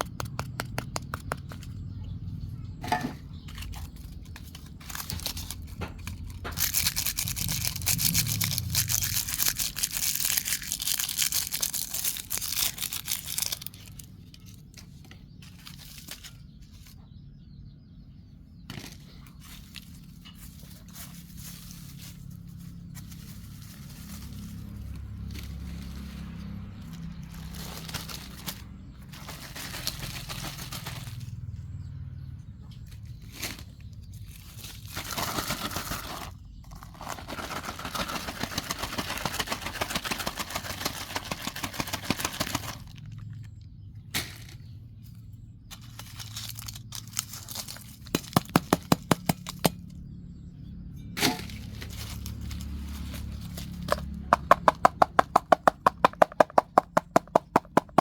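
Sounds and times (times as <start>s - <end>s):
low steady rumble: 1.5s - 38.4s
plastic rubbish crinkling: 2.8s - 16.7s, 18.8s - 31.4s, 33.1s - 43.4s, 45.7s - 49.8s.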